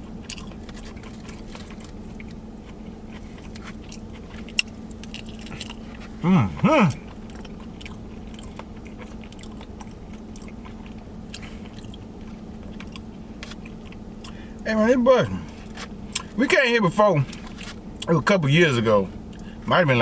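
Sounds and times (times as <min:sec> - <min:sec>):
person chewing food: 0:00.0 - 0:14.6, 0:15.4 - 0:16.4
steady hum: 0:00.0 - 0:20.0
person humming mm: 0:06.2 - 0:07.0.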